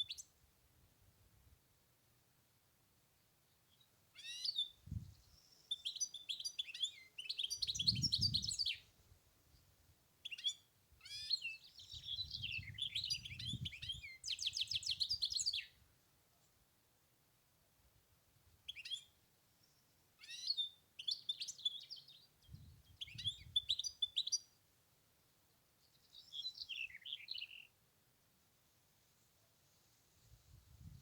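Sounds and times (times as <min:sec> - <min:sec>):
goldfinch singing: 0:05.6 - 0:08.8, 0:10.2 - 0:15.8, 0:20.2 - 0:22.3, 0:23.0 - 0:24.5.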